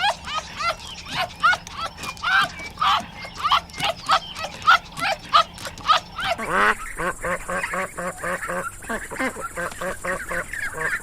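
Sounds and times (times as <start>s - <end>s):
dog yelping: 0.0s - 6.8s.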